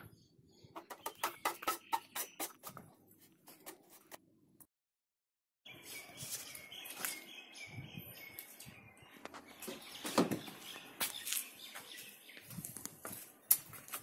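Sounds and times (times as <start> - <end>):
birds chirping: 0.0 - 2.8, 5.7 - 13.5
knocks and thumps: 10.0 - 10.5.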